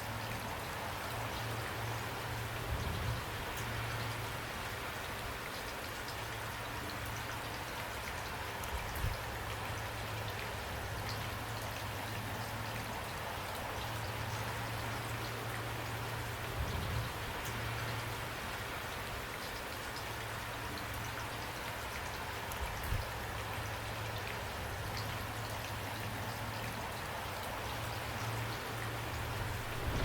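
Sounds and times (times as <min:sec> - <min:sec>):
rain drops ticking: 0:00.0 - 0:30.0
low rumble: 0:29.1 - 0:30.0.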